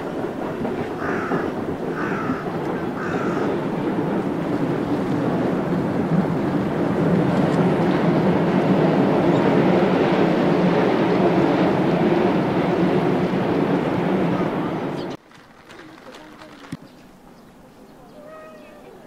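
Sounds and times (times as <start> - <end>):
electric train running past: 0.0 - 15.2.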